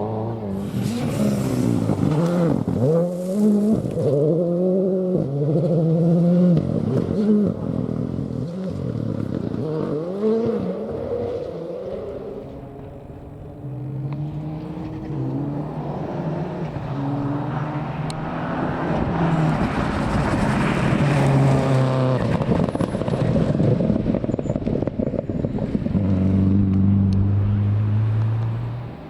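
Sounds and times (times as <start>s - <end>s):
rally car engine revving: 0.0s - 29.0s.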